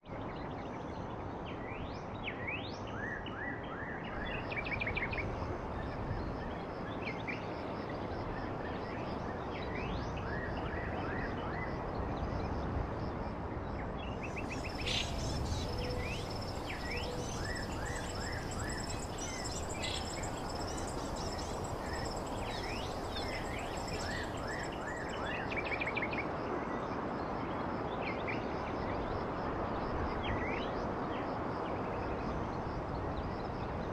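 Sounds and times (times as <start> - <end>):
steady background hiss: 14.0 - 26.3
small birds chirping: 14.2 - 25.7.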